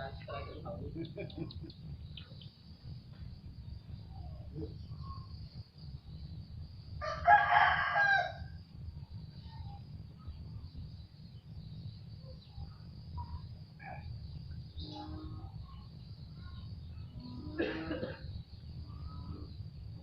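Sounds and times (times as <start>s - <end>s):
steady low rumble: 0.0s - 20.0s
rooster crowing: 7.0s - 8.6s.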